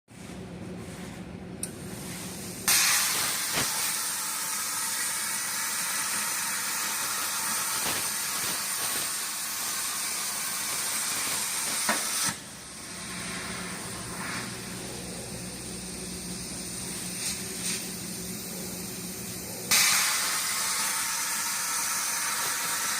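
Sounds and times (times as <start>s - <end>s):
plasma torch arc hissing: 1.7s - 22.9s.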